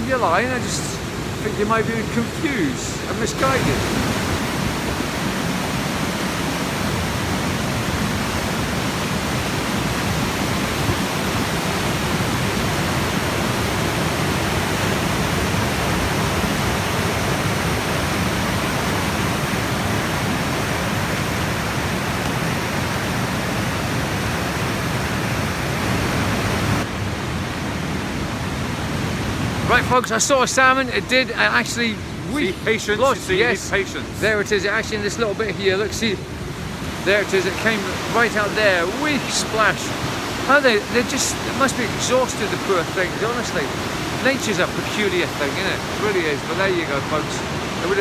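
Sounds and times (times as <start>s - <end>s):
river rapids rushing: 0.0s - 48.0s.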